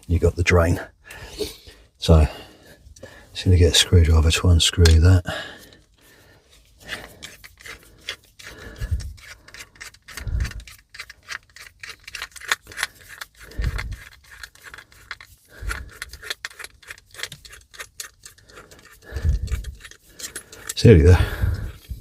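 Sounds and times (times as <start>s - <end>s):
tools clicking and scraping: 6.5s - 22.0s.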